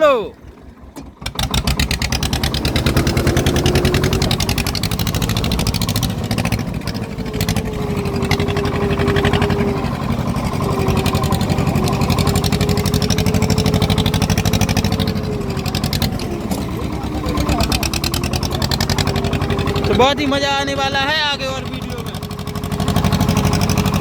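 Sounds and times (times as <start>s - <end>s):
tractor diesel engine chugging: 0.0s - 24.0s.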